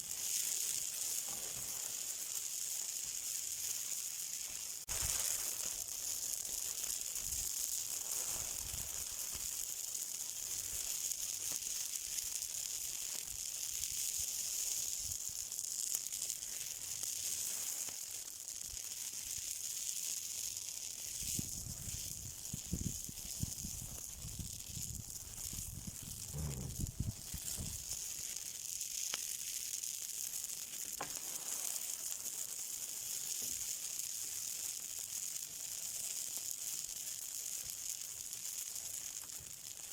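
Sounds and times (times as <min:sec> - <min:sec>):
fire hissing and sizzling: 0:00.0 - 0:39.9
faint pops: 0:26.0 - 0:28.0
low rumbling: 0:26.1 - 0:27.8.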